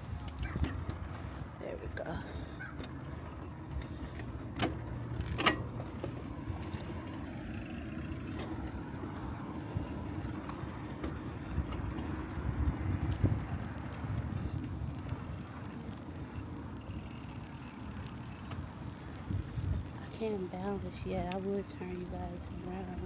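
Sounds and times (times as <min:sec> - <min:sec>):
bicycle tyres rumbling on path: 0:00.0 - 0:23.0
wind on microphone: 0:09.6 - 0:17.2, 0:18.9 - 0:23.0.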